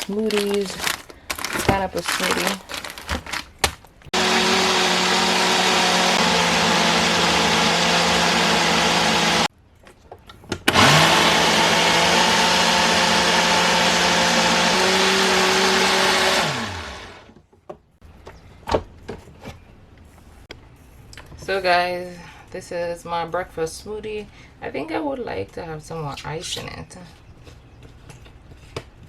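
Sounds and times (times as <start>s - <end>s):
blender running: 4.1s - 9.5s, 10.7s - 17.3s.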